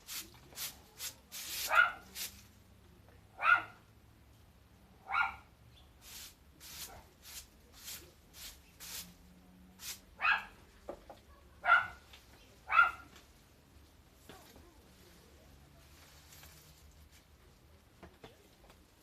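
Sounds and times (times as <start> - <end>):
short scratchy strokes: 0.0 - 2.4, 6.0 - 9.2
dog barking: 1.7 - 2.1, 3.4 - 3.8, 5.0 - 5.5, 10.2 - 10.6, 11.6 - 12.0, 12.7 - 13.1.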